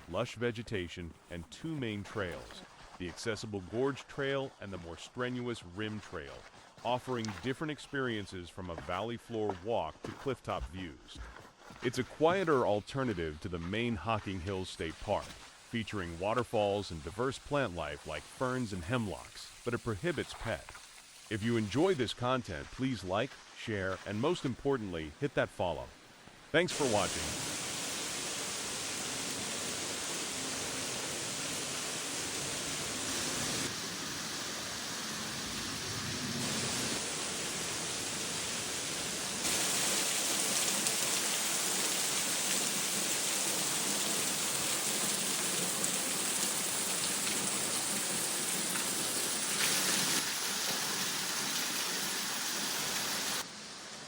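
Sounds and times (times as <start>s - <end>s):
falling water rushing: 14.1s - 25.1s, 26.6s - 53.4s.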